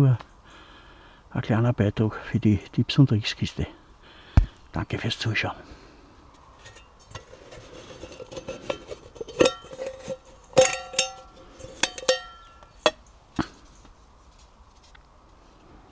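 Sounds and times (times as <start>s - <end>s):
metallic clinks of cookware: 8.0s - 13.0s.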